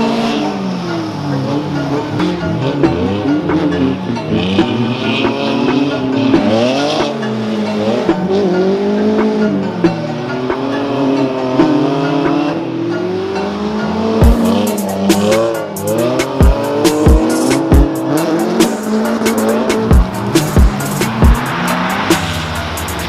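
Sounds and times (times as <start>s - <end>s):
car engine revving: 0.0s - 23.0s
music with heavy beat: 2.7s - 7.2s, 14.0s - 23.0s
tyres squealing: 14.2s - 23.0s.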